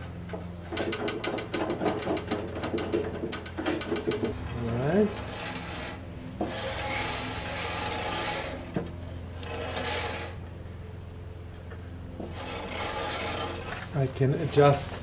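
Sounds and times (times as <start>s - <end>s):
bandsaw blade scraping: 4.2s - 10.4s, 12.2s - 14.8s.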